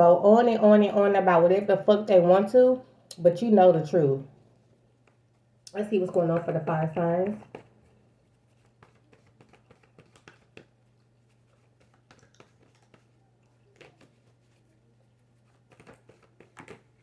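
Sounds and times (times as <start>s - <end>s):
low steady hum: 0.0s - 17.0s
cards clicking and tapping: 7.2s - 8.0s, 8.6s - 14.6s, 15.4s - 17.0s.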